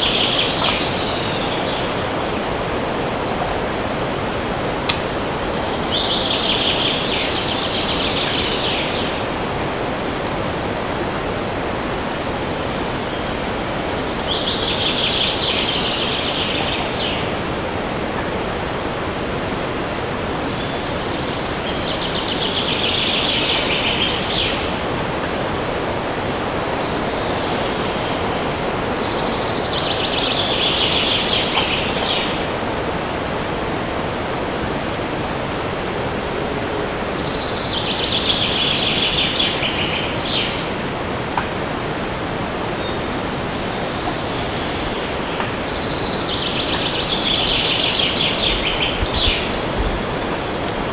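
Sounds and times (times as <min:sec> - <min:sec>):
wind in trees: 0:00.0 - 0:50.9.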